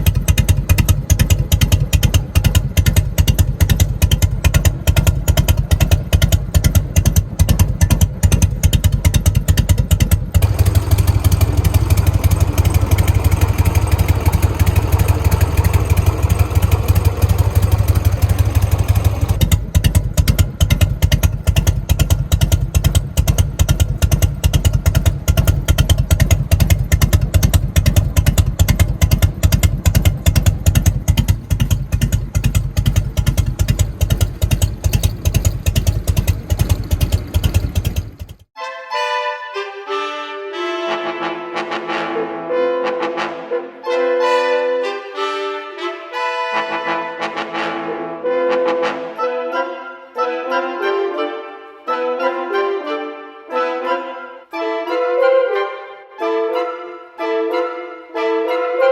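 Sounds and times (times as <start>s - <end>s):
motorcycle engine idling: 0.0s - 38.6s.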